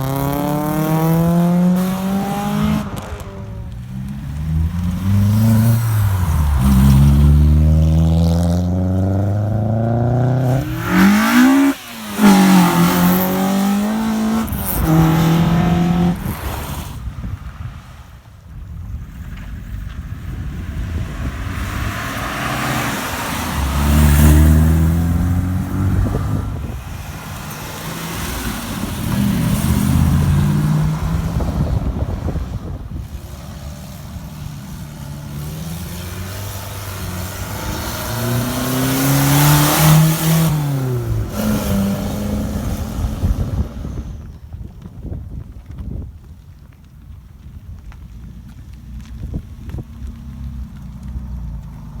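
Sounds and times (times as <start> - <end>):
car engines revving past: 0.0 - 18.2, 19.2 - 44.4.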